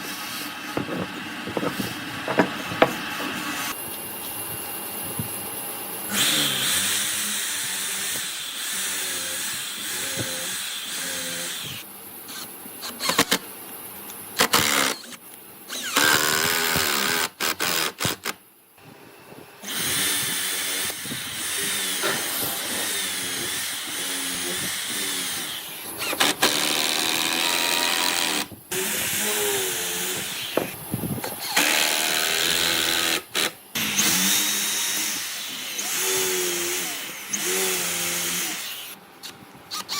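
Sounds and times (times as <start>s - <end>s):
power tools working wood: 0.0s - 3.8s, 6.1s - 11.8s, 19.6s - 39.0s.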